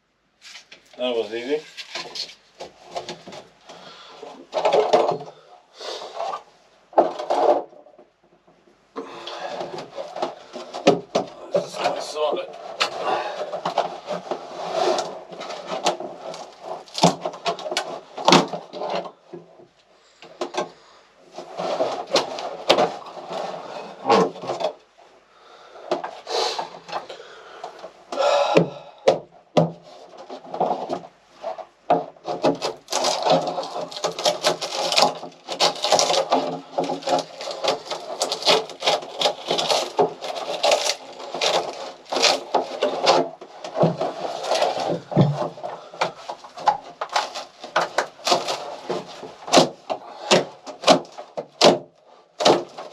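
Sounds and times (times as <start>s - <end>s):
wood scraping: 0.4s - 52.9s
wood knocking and cracking: 0.5s - 5.5s, 6.2s - 24.9s, 25.5s - 52.9s.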